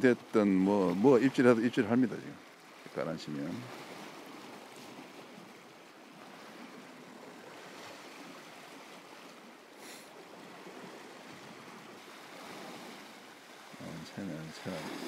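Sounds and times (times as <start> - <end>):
seawater washing on rocks: 13.8 - 15.0.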